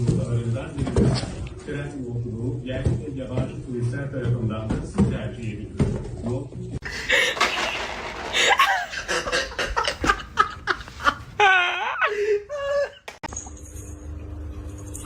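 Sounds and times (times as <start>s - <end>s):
person laughing: 6.8s - 13.2s.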